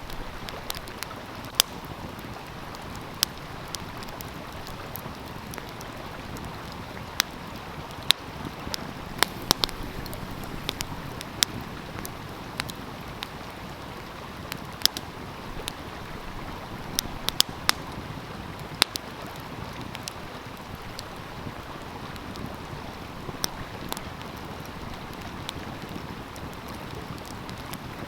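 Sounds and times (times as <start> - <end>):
stream flowing: 0.0 - 26.4
wood fire crackling and popping: 0.0 - 28.0.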